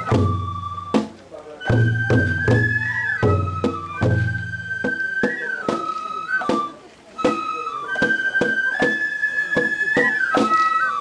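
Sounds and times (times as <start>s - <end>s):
deep drum strikes: 0.0s - 5.0s
high flute melody: 0.0s - 11.0s.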